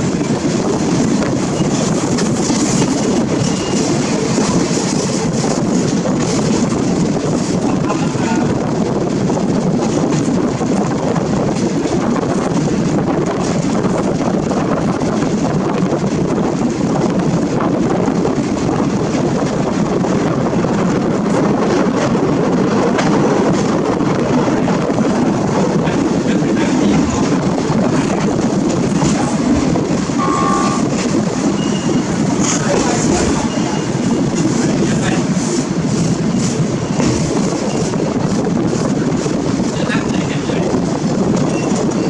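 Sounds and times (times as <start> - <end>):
rushing air: 0.0 - 42.0
train wheels on rails: 0.0 - 42.0.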